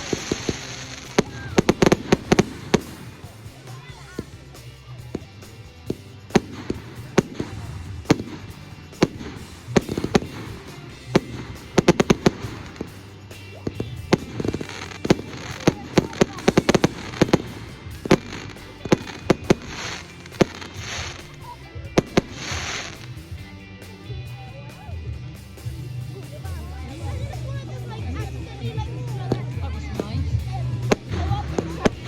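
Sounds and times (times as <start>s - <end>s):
fireworks bangs: 0.0s - 4.5s, 5.1s - 23.1s
fireworks crackle: 0.0s - 23.4s, 26.5s - 32.0s.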